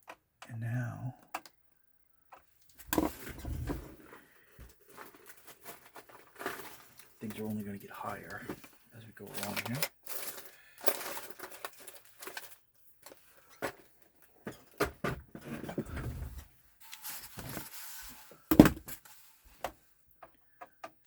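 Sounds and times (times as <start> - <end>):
clicks scrapes and knocks of parts: 2.3 - 16.2.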